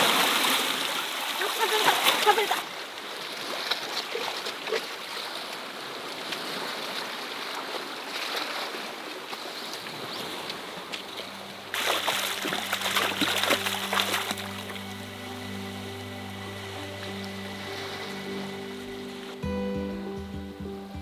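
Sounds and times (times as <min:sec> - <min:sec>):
background music with steady tones: 0:10.9 - 0:21.0
water splashing on rocks: 0:11.7 - 0:14.8.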